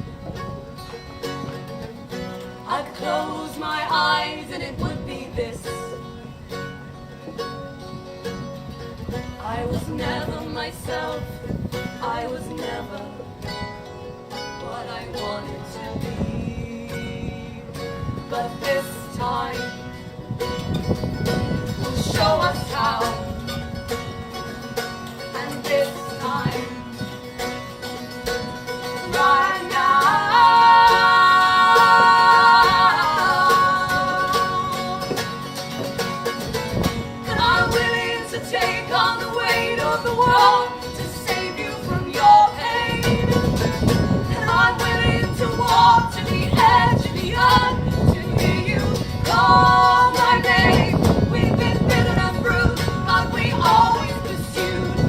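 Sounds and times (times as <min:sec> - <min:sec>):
acoustic guitar strumming: 0:00.0 - 0:55.0
woman singing wordlessly: 0:02.6 - 0:06.0, 0:09.4 - 0:13.3, 0:14.6 - 0:19.8, 0:25.3 - 0:27.0, 0:29.1 - 0:35.2, 0:37.3 - 0:55.0.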